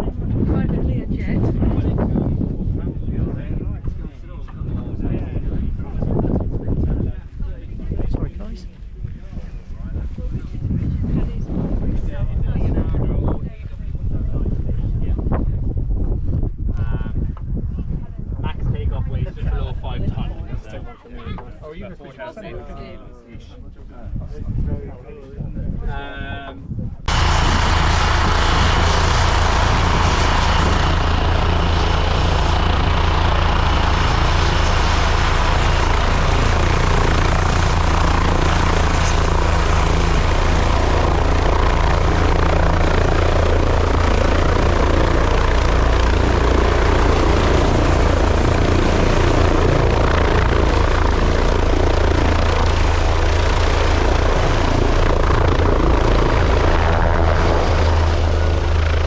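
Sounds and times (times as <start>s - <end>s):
helicopter rotor thump: 27.1s - 59.0s
high turbine whine: 27.1s - 59.0s
turbine engines rushing: 27.1s - 59.0s.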